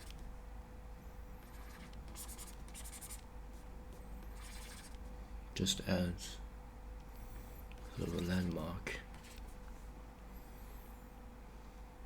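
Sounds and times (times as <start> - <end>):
faint electrical hum: 0.0 - 12.0
stylus scratching on tablet: 1.4 - 3.3, 4.2 - 5.0, 7.8 - 9.6.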